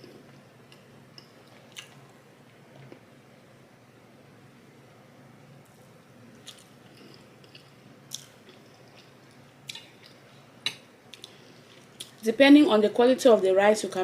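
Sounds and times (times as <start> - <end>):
quiet chewing: 0.1 - 2.1, 6.4 - 10.4, 11.1 - 12.2.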